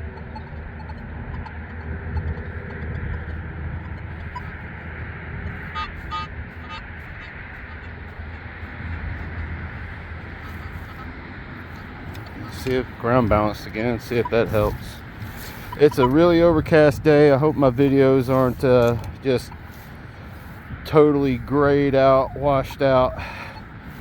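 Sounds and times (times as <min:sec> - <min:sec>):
metal detector chirps: 0:00.0 - 0:07.9, 0:10.4 - 0:20.6
wind rumbling on microphone: 0:00.0 - 0:24.0.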